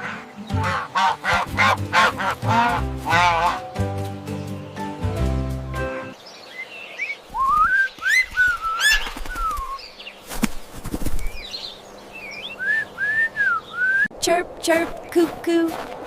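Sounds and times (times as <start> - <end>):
birds whistling notes: 5.9 - 14.1.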